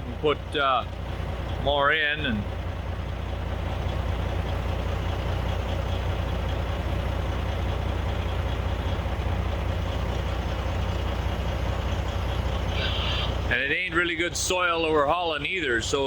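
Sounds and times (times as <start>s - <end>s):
diesel machinery rumbling: 0.0s - 16.0s.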